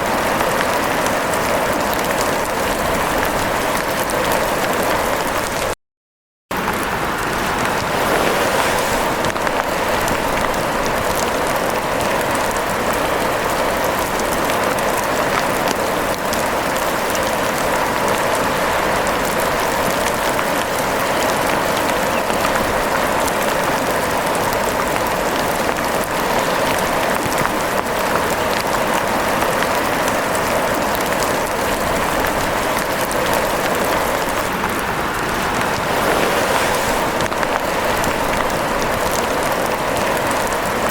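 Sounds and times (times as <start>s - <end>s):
steady rain falling: 0.0s - 5.8s, 6.6s - 40.9s.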